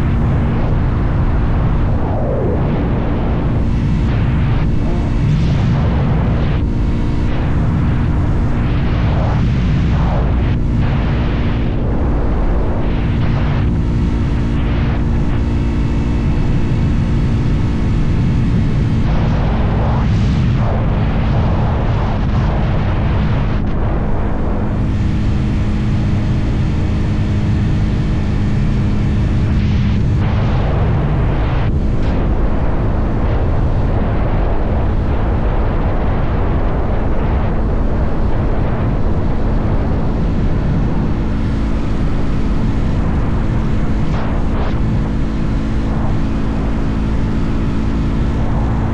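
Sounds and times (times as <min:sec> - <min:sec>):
motorcycle engine cruising: 0:00.0 - 0:34.0
wind rumble on microphone: 0:00.0 - 0:48.9.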